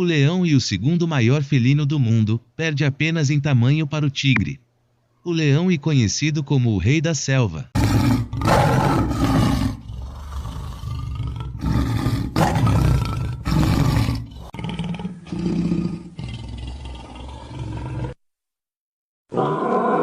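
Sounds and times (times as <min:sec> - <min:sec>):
lion roaring and grunting: 0:07.7 - 0:18.2, 0:19.3 - 0:20.0.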